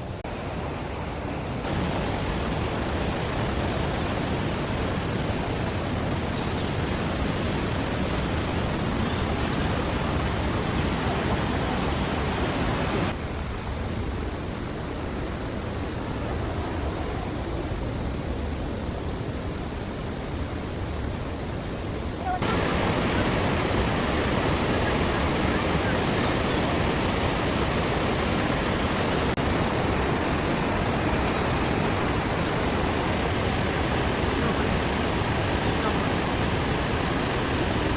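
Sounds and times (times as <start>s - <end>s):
waterfall rushing: 0.0s - 13.2s, 22.0s - 37.9s.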